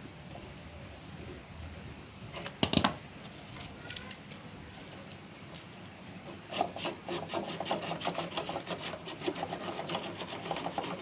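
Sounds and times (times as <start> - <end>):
hand scraping copper tubing: 6.2 - 11.0.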